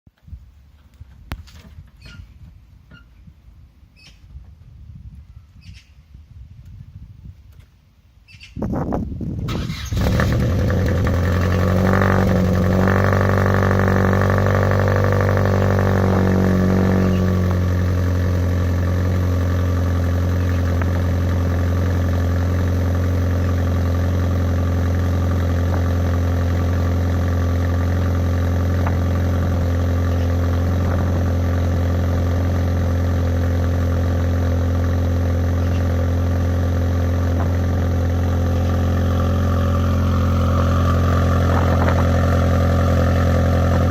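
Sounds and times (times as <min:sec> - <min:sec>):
car engine idling: 0:09.7 - 0:43.9.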